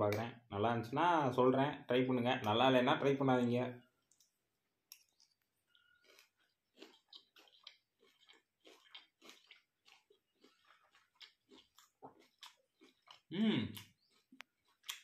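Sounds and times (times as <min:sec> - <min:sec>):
faint crunchy chewing: 0:03.8 - 0:15.0.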